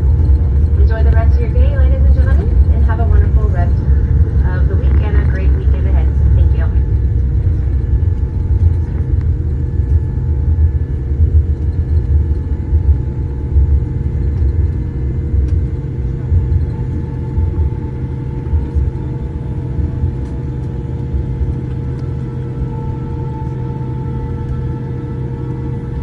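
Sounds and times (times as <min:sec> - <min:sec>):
airliner rolling rumble: 0:00.0 - 0:26.0
faint steady hum: 0:00.0 - 0:26.0.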